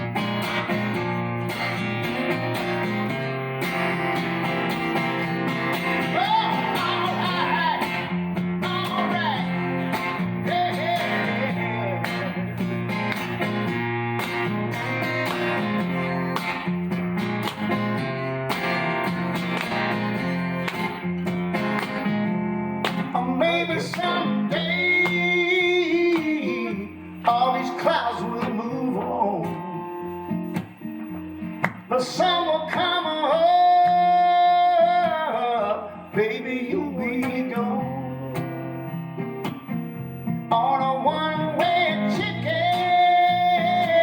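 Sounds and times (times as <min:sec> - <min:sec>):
live band playing: 0:00.0 - 0:23.2
guitar with bending notes: 0:00.0 - 0:44.0.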